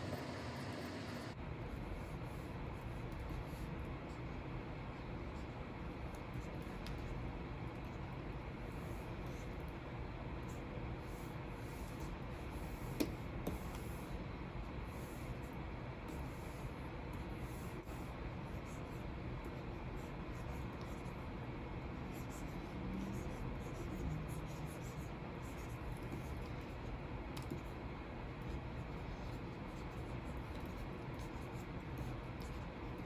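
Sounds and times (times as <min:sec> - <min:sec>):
stylus scratching on screen: 0:15.0 - 0:27.8, 0:28.4 - 0:33.0.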